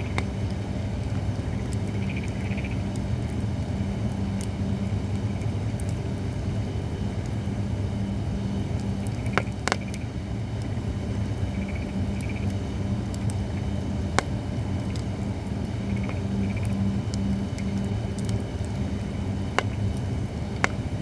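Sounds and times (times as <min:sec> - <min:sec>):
firewood crackling: 0:00.0 - 0:21.0
low hum: 0:00.0 - 0:21.0
fire pops: 0:08.8 - 0:10.7, 0:12.1 - 0:21.0.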